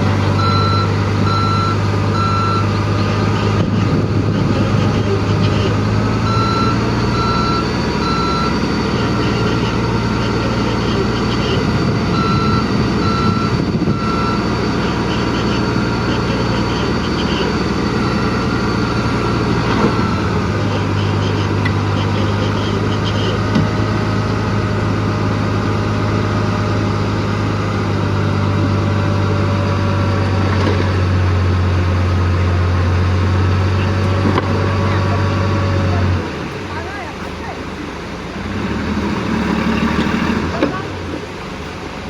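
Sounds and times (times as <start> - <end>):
diesel engine running: 0.0 - 42.0
short high beeps: 0.3 - 23.5.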